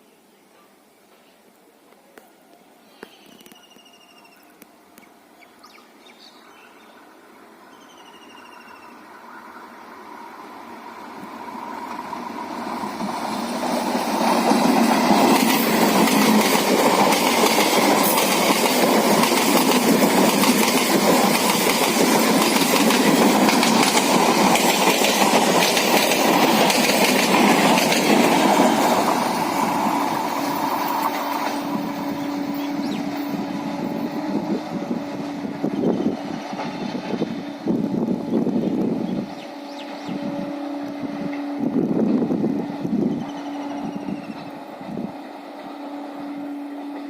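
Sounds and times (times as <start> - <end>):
electric train passing: 3.6 - 47.0
train wheels clattering on track: 11.7 - 37.8.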